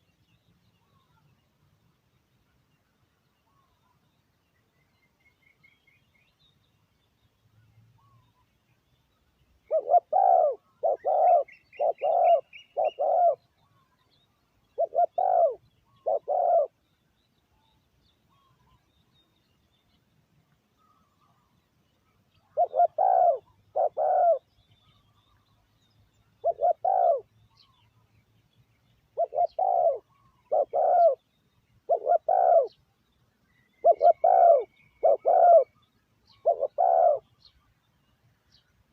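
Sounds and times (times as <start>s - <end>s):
faint high bird chirps: 0.0s - 38.9s
dove cooing: 9.7s - 13.5s, 14.8s - 16.8s, 22.5s - 24.5s, 26.4s - 27.3s, 29.2s - 31.2s, 31.9s - 32.8s, 33.8s - 37.3s.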